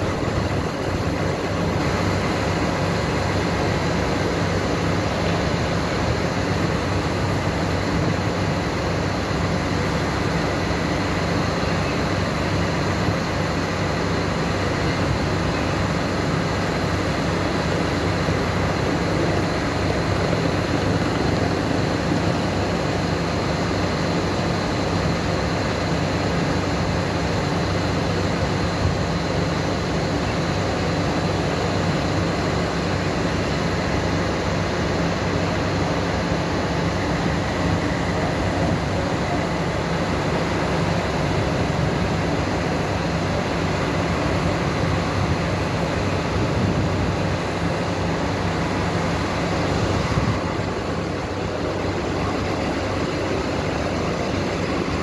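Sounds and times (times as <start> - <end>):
train machinery humming: 0.0 - 55.0.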